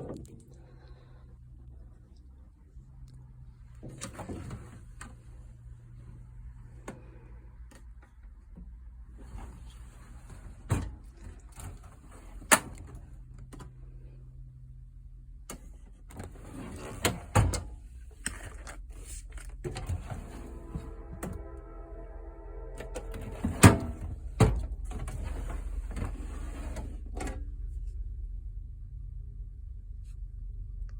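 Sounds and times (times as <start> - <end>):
drawers clunking shut: 3.8 - 5.0, 16.1 - 17.8, 19.6 - 21.4, 22.8 - 27.4
metal drawers sliding: 3.8 - 5.2, 9.2 - 13.0, 16.1 - 17.8, 18.4 - 21.6, 22.8 - 27.4
low hum: 19.4 - 30.9.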